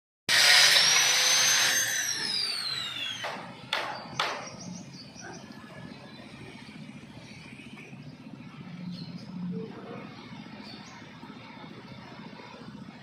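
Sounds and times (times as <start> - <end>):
power tool whining: 0.3 - 3.6
sharp knocks: 3.2 - 4.6.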